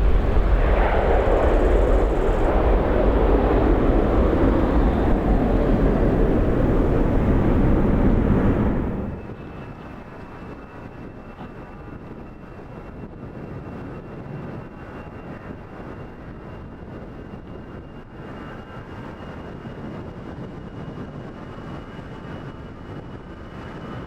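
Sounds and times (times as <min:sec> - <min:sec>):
jet engines running: 0:00.0 - 0:09.6.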